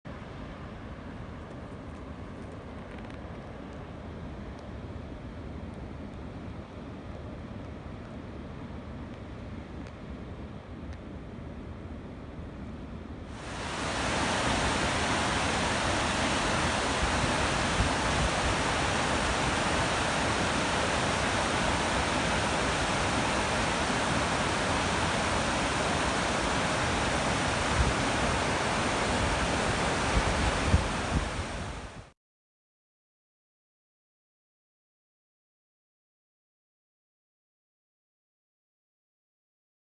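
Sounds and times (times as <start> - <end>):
rushing water from dam outflow: 13.4 - 32.1.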